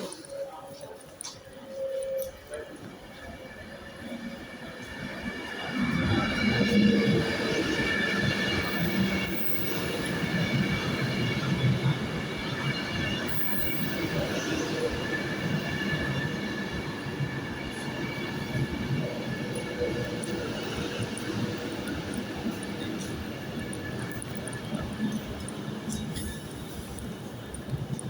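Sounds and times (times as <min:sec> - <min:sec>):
rumble of train coaches: 0:00.0 - 0:28.0
train brakes squealing: 0:07.9 - 0:22.8.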